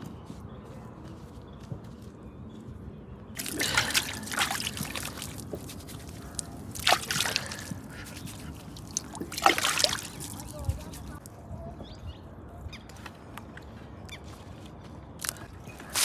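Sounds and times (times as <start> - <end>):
water and mud splashing: 3.4 - 11.3, 15.2 - 16.0.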